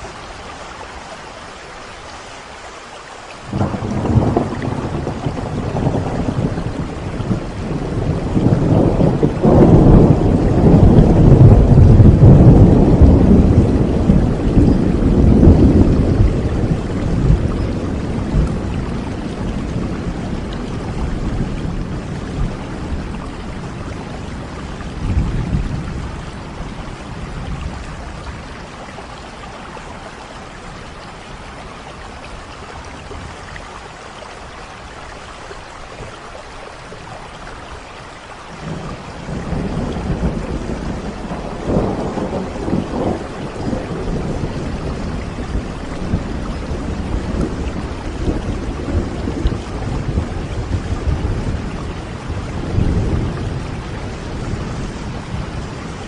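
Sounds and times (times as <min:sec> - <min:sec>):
heavy rain: 0:00.0 - 0:56.0
rolling thunder: 0:03.5 - 0:28.8, 0:38.6 - 0:56.0.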